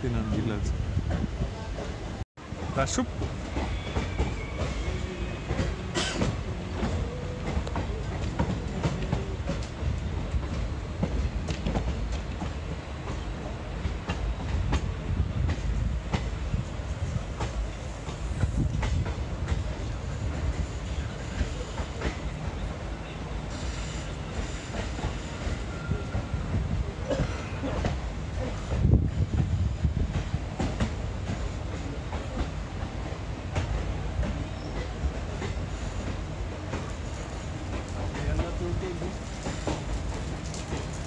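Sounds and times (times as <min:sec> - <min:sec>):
train coaches rumbling: 0:00.0 - 0:41.0.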